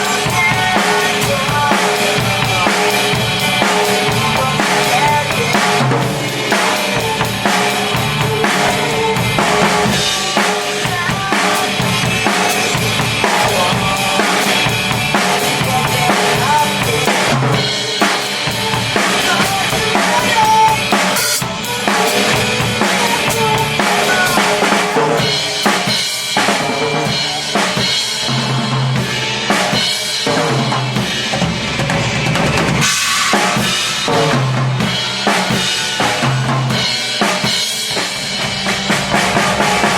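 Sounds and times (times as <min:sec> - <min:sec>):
drum kit playing: 0:00.0 - 0:39.9
rock backing track: 0:00.0 - 0:39.9.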